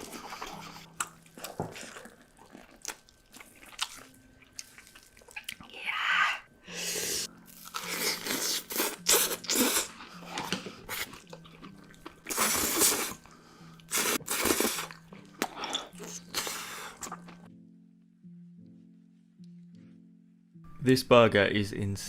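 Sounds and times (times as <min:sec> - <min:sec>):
crunchy wet bites and chewing: 0:00.9 - 0:05.7.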